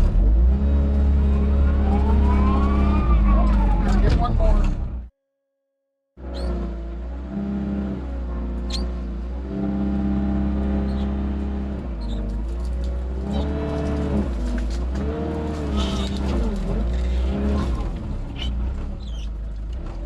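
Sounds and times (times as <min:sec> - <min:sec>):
tractor engine lugging: 0:10.8 - 0:20.0.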